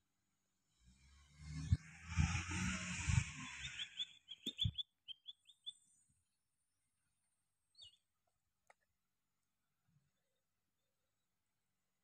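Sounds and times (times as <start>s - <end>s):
small bird chirping: 3.3s - 6.0s, 7.7s - 8.1s.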